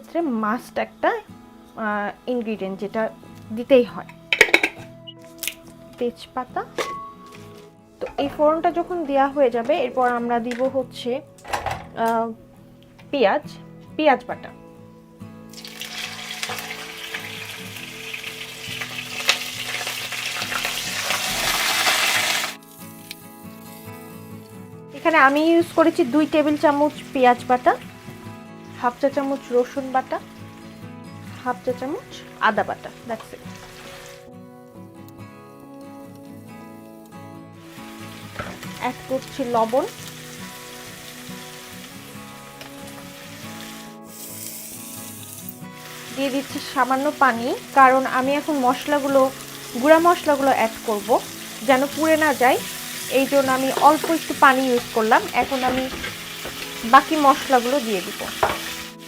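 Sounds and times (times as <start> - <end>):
soft background music: 0.0 - 59.0
utensil knocking against pan: 4.4 - 4.9, 54.8 - 56.7, 58.3 - 58.7
paste sizzling in hot oil: 15.5 - 24.3, 25.0 - 34.3, 37.6 - 59.0.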